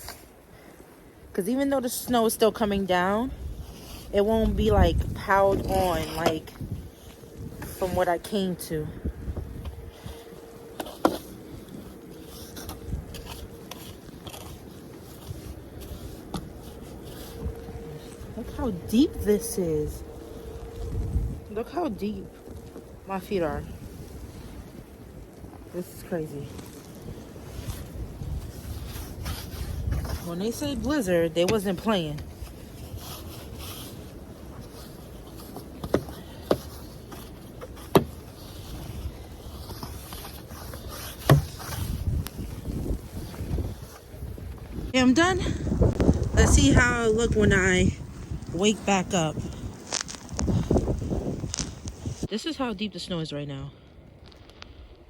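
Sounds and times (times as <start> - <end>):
wind rumbling on microphone: 2.1 - 52.4
snow crunching: 9.6 - 53.4.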